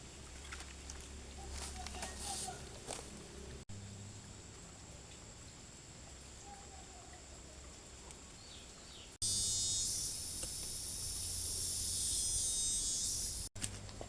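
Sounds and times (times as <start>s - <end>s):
soft chirps: 8.6s - 13.5s
insect high trill: 9.2s - 13.5s
loud high-pitched insect buzz: 9.2s - 13.5s.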